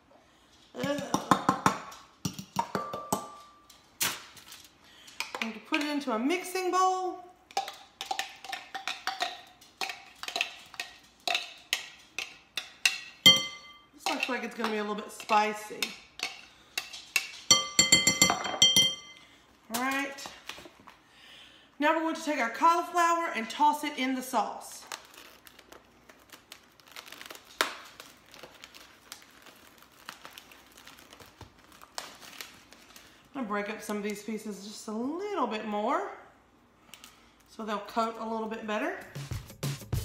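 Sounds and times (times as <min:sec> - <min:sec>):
plastic bag crinkling: 0:24.8 - 0:33.3.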